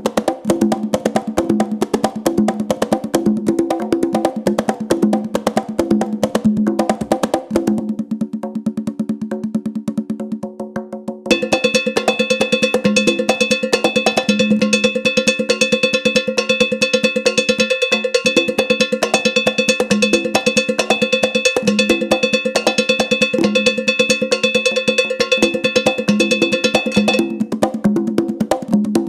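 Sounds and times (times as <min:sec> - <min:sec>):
metal bell struck rhythmically: 0:11.3 - 0:27.5.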